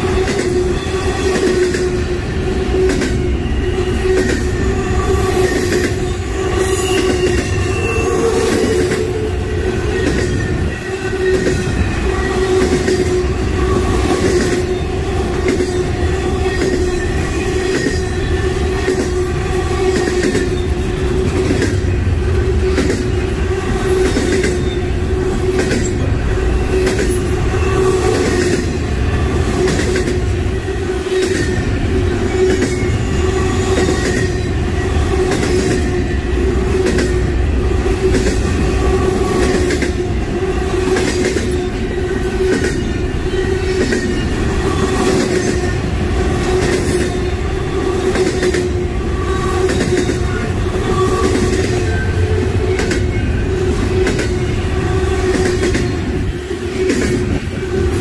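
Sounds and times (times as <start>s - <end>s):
freight train cars rolling: 0.0s - 58.0s
high wheel squeal: 2.6s - 29.9s, 41.4s - 58.0s.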